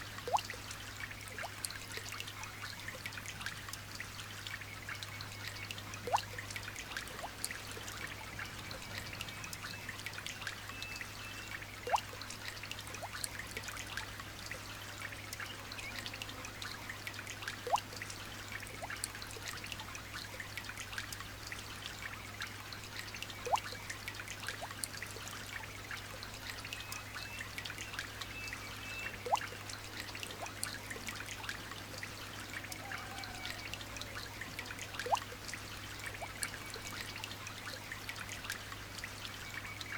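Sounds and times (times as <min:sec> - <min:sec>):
light rain pattering: 0:00.0 - 0:39.9
water trickling: 0:00.0 - 0:39.9
single drip plinking: 0:06.0 - 0:06.3.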